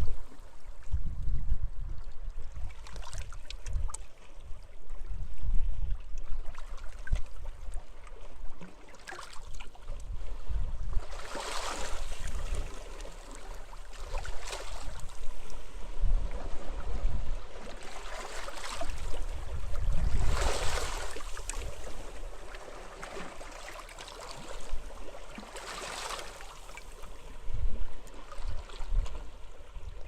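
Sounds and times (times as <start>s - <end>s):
wind rumbling on microphone: 0.0s - 8.6s, 9.5s - 23.3s, 27.1s - 30.0s
sea waves splashing on shore: 11.0s - 15.8s, 17.5s - 27.2s.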